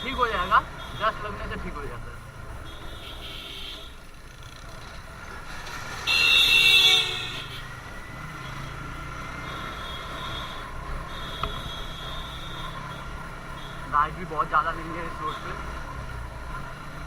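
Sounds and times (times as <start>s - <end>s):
motorcycle engine running: 0.0s - 17.0s
road noise: 0.0s - 17.0s
vehicle horn honk: 2.6s - 4.0s, 6.1s - 7.7s, 9.5s - 13.8s.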